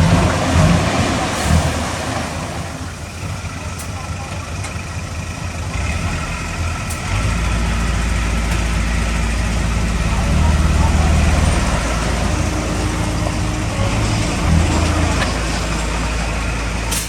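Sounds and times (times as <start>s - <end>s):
diesel engine idling: 0.0s - 17.0s
deeper engine note: 5.7s - 17.0s.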